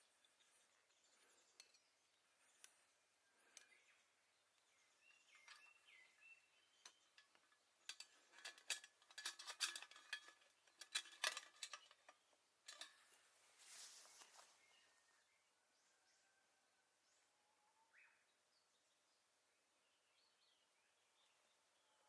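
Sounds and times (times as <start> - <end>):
metal parts clinking and rattling: 6.8 - 13.2
short rustling hiss: 13.1 - 14.7.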